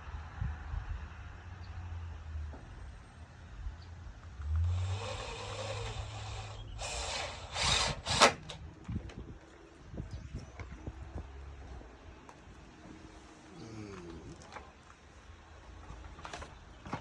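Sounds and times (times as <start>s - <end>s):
power drill boring into wood: 4.6s - 8.6s.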